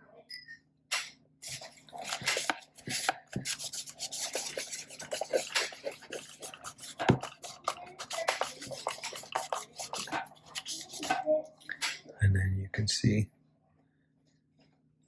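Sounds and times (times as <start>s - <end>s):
scratchy rubbing on plastic: 1.4s - 11.4s.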